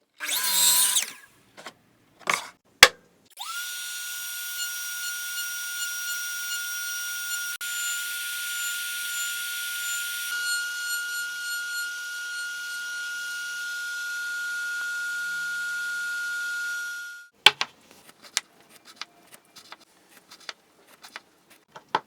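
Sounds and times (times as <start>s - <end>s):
router motor whining: 0.2s - 1.2s, 3.4s - 17.3s.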